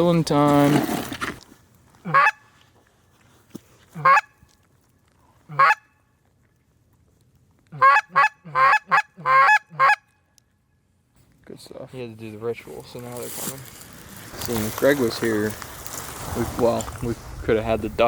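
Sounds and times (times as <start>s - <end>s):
goose honking: 2.0s - 2.4s, 4.0s - 4.4s, 5.5s - 5.9s, 7.7s - 10.1s.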